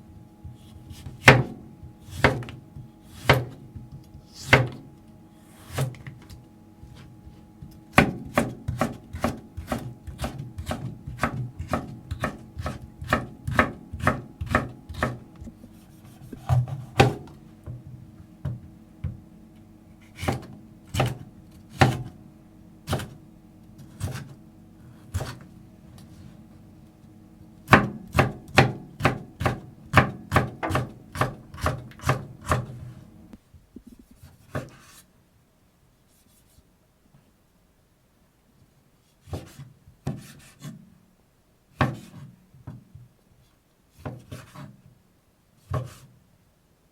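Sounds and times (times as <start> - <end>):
knife chopping on wooden board: 0.4 - 4.8, 5.6 - 17.8, 20.0 - 22.2, 22.9 - 23.2, 23.8 - 25.5, 27.6 - 33.0, 39.2 - 40.8, 41.8 - 42.8, 45.7 - 46.1.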